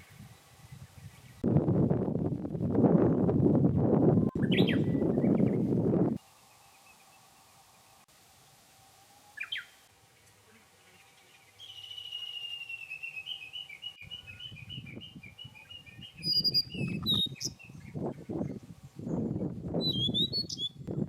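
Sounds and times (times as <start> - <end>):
songbird singing: 4.0 - 8.1, 9.3 - 21.0.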